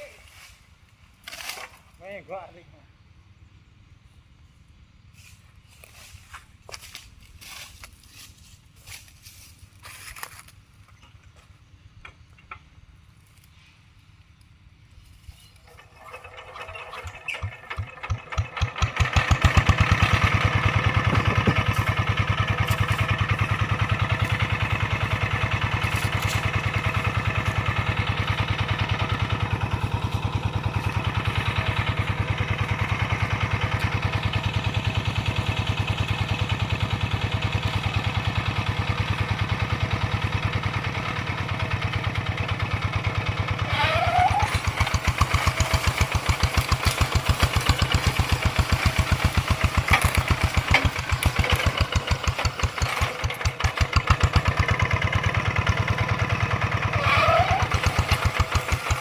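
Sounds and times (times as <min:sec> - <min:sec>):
tractor engine starting: 0:15.4 - 0:59.0.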